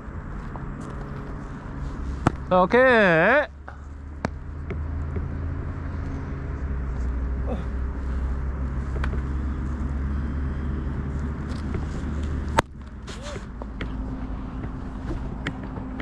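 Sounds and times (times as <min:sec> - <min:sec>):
low background hum: 0:00.0 - 0:16.0
ball smacking leather mitt: 0:02.2 - 0:02.5, 0:04.2 - 0:05.3.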